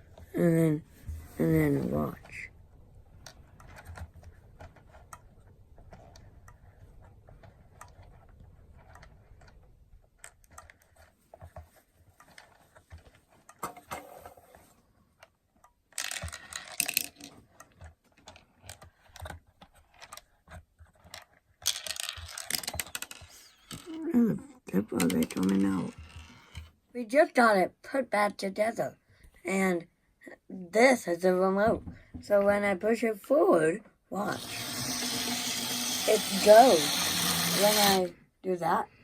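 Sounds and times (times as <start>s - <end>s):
plastic toy mechanism clicking: 3.2s - 11.4s, 15.2s - 26.7s, 34.3s - 38.1s
plastic clattering rattles: 15.9s - 24.0s, 24.7s - 26.7s.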